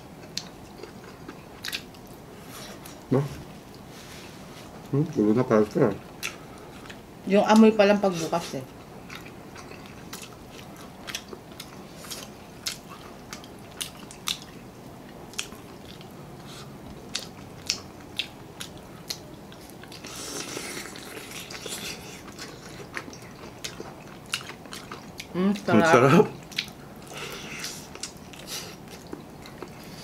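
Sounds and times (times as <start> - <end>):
chewing and biting food: 0.2 - 3.0, 8.8 - 25.7, 26.3 - 30.0.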